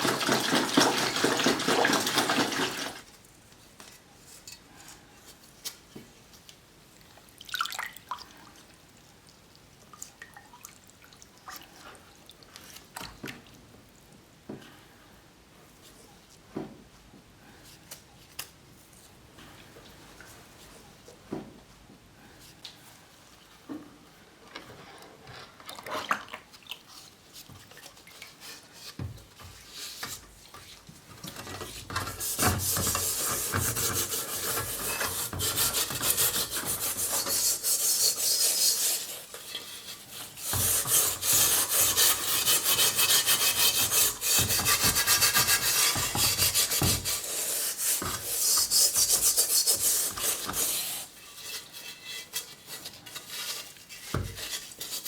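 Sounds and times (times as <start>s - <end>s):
rasping strokes on steel helmet: 31.5s - 55.0s.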